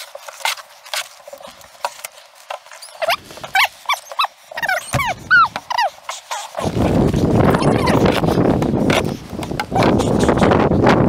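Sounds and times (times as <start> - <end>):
dog whining and yipping: 2.8 - 6.8, 7.5 - 8.0.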